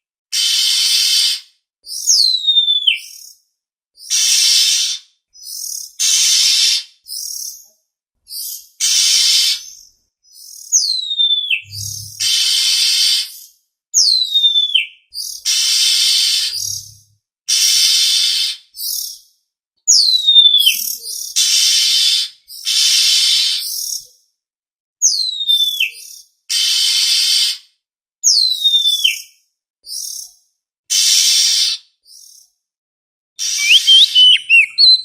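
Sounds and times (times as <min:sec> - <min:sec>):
bird harsh scolding calls: 0:04.0 - 0:06.9, 0:08.8 - 0:09.8, 0:11.6 - 0:13.4, 0:15.5 - 0:17.0, 0:21.1 - 0:24.0, 0:30.9 - 0:31.8, 0:33.4 - 0:35.0
bird falling whistles: 0:33.4 - 0:35.0.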